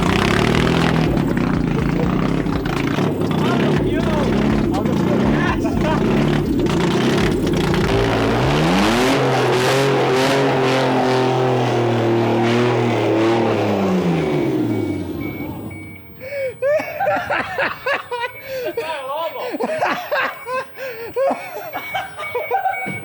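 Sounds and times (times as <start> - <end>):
loud car engine revving: 0.0 - 16.0.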